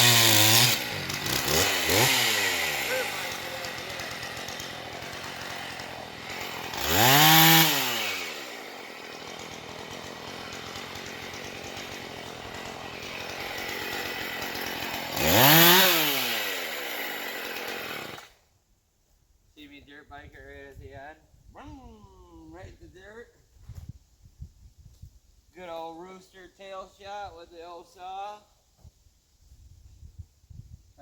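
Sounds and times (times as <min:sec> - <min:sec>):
chainsaw idling and revving: 0:00.0 - 0:18.4.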